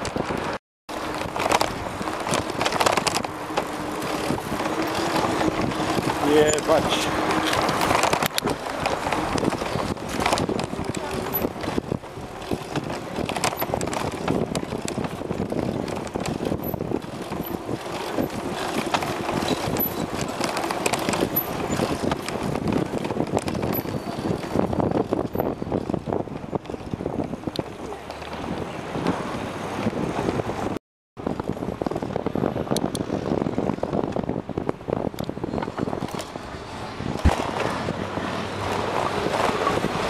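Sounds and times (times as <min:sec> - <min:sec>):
bicycle knocking over bumps: 0:00.0 - 0:27.4
wind and bicycle rolling: 0:00.0 - 0:40.0.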